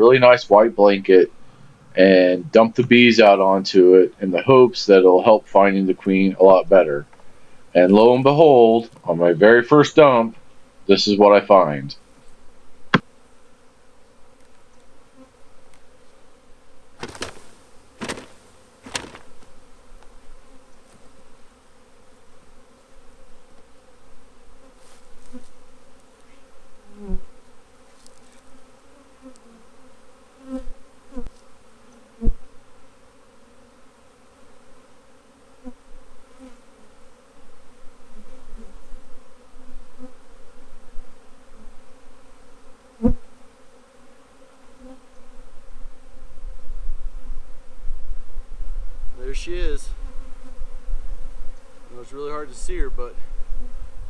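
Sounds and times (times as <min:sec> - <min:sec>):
bees buzzing: 0:00.0 - 0:54.0
sharp knocks: 0:17.0 - 0:19.4.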